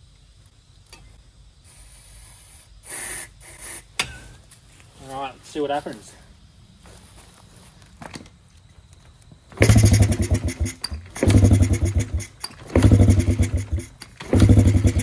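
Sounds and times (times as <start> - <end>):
small engine kick-started chugging: 9.5 - 15.0.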